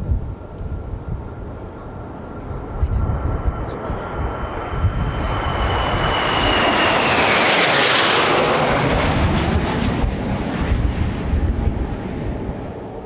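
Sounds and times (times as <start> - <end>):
wind rumbling on microphone: 0.0 - 13.0
jet passing overhead: 0.4 - 13.0.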